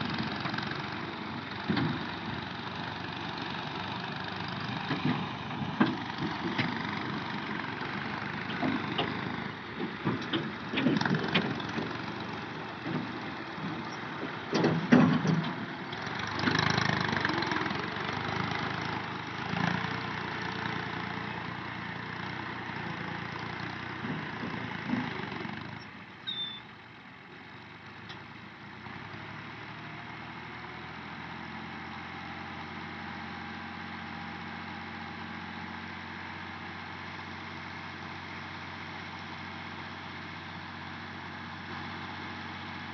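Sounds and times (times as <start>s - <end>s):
tractor engine running: 0.0s - 42.9s
knocks and clatter: 8.4s - 16.8s, 24.0s - 25.8s.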